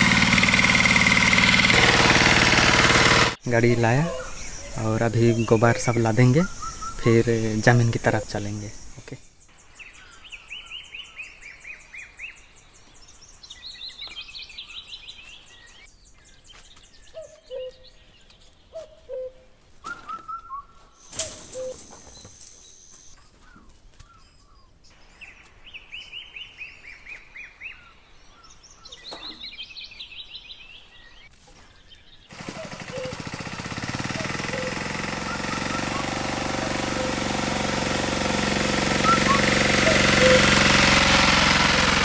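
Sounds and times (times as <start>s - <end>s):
bird singing falling notes: 3.4s - 9.2s, 13.6s - 33.3s, 38.9s - 41.3s
lower bird calls: 3.4s - 15.9s, 17.0s - 18.1s, 18.7s - 42.0s.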